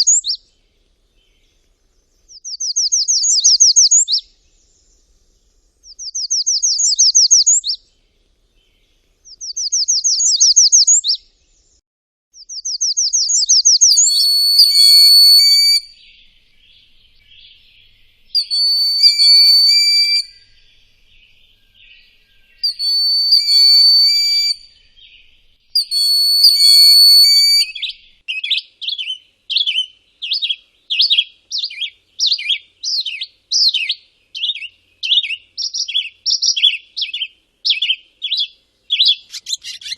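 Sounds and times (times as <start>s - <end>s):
long whistled bird notes: 0.0s - 0.5s, 2.3s - 5.0s, 5.8s - 7.9s, 9.3s - 11.3s, 12.4s - 39.9s
short bird chirps: 0.0s - 0.5s, 2.2s - 5.0s, 5.8s - 7.9s, 8.6s - 11.8s, 12.4s - 39.9s
bird trills: 12.4s - 39.9s
buzzy bird chatter: 17.2s - 20.6s, 33.7s - 39.9s.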